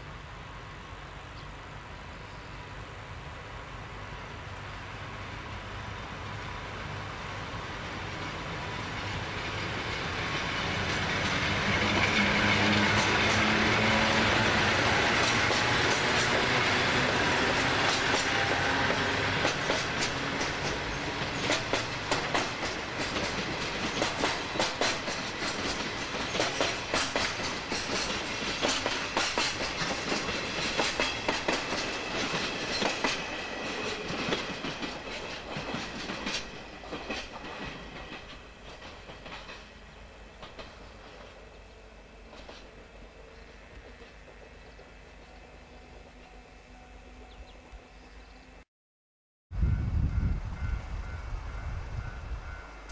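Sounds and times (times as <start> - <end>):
electric locomotives running: 0.0 - 48.6
wheels clattering over rail joints: 8.9 - 39.7.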